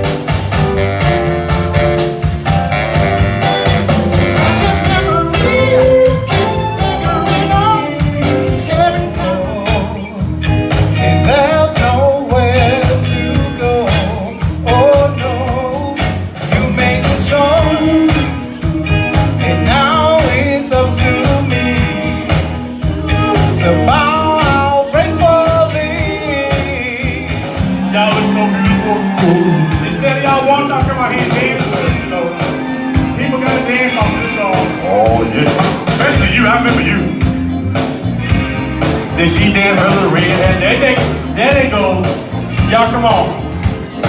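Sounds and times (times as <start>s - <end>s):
live soul band playing: 0.0s - 44.0s
lead singer singing: 4.2s - 37.5s.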